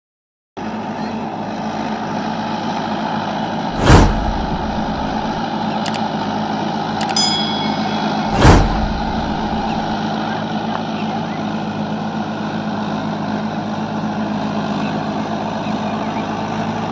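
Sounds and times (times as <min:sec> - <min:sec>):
tractor diesel engine running: 0:00.6 - 0:16.9
loud rushes of noise: 0:03.7 - 0:06.0, 0:07.0 - 0:10.0
brief metallic ring: 0:07.0 - 0:09.9.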